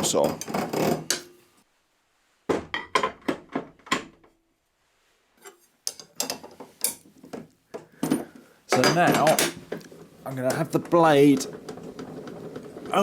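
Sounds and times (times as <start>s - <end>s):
metal clicks and clanks: 5.8s - 13.0s.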